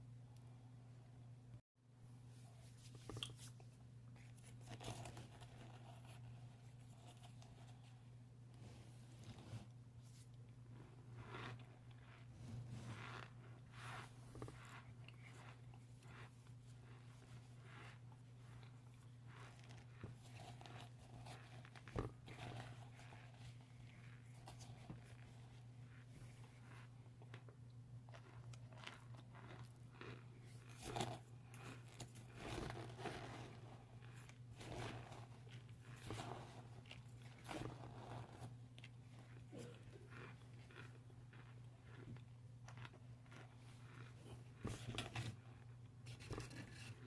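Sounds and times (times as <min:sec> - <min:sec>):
crunchy chewing: 0:10.7 - 0:25.6, 0:26.4 - 0:47.0.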